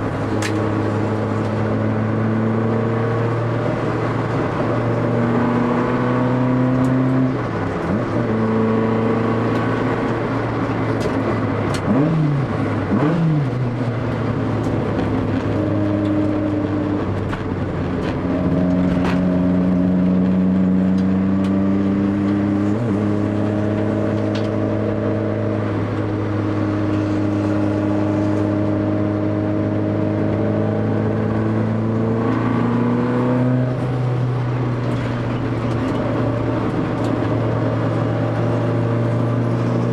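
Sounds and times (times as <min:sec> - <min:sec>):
car engine revving hard: 0:00.0 - 0:39.9.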